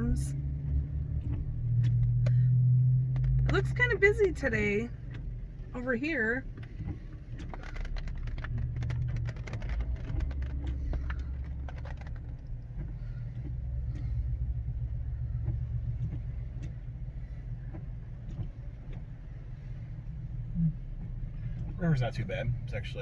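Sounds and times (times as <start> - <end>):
car engine and tyre rumble: 0.0 - 23.0
clicks and taps: 6.8 - 14.1.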